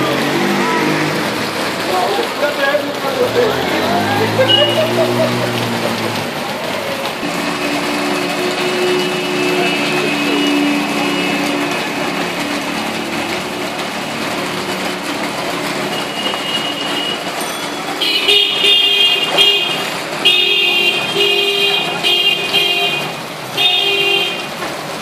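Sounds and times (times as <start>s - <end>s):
street traffic engines: 0.0s - 25.0s
vehicle horns honking: 3.6s - 6.2s, 7.2s - 13.1s, 15.6s - 24.6s.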